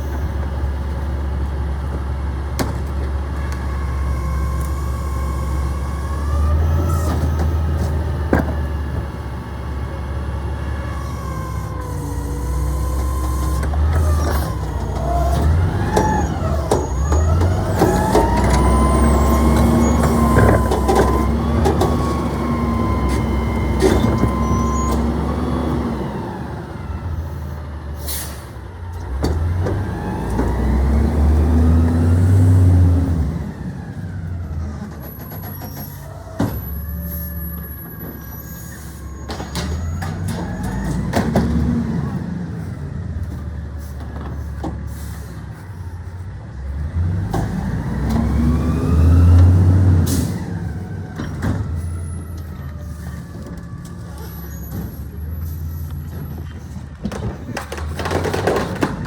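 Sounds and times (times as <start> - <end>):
garbage truck engine running: 0.0 - 59.0
knocks and clanks: 56.0 - 59.0.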